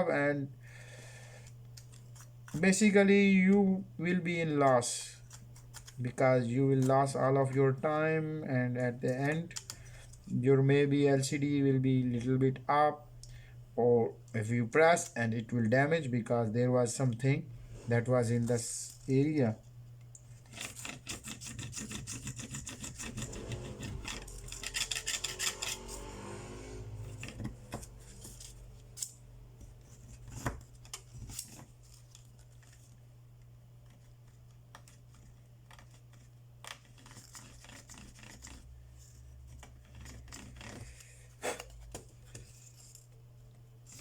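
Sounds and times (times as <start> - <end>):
steady low hum: 0.0 - 44.0
tool scraping phone frame: 20.4 - 32.8, 34.8 - 43.1.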